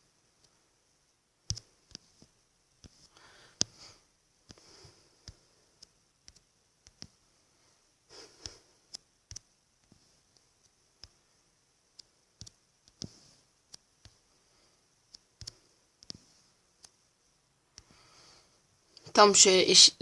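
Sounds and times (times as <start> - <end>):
finger tapping touchscreen: 1.4 - 7.2, 8.1 - 11.2, 11.9 - 14.2, 15.1 - 17.0
soft sniffs: 7.6 - 8.8.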